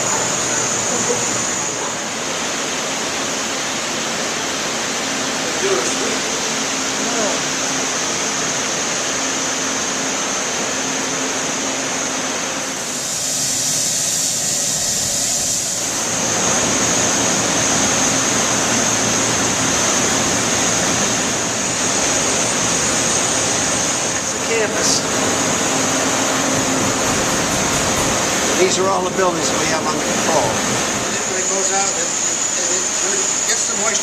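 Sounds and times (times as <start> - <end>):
air handling equipment rushing: 12.9 - 31.3.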